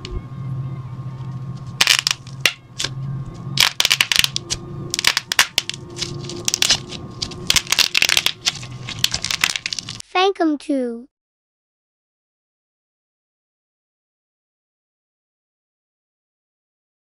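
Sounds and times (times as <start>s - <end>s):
slime crackling and popping: 1.8s - 2.9s, 3.6s - 10.0s.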